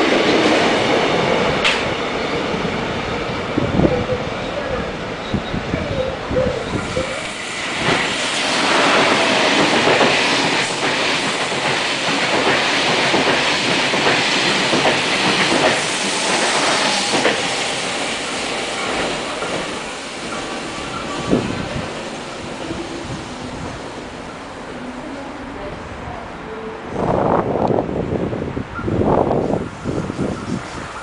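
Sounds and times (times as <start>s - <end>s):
high-speed train passing: 0.0s - 31.0s
rail joint clicks: 1.6s - 2.0s, 6.4s - 17.7s.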